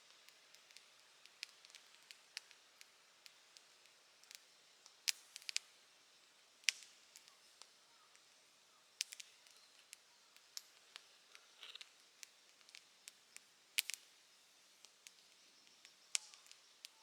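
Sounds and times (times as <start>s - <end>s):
faint hiss: 0.0s - 17.0s
campfire crackling and popping: 0.1s - 5.7s, 6.6s - 8.3s, 9.0s - 17.0s.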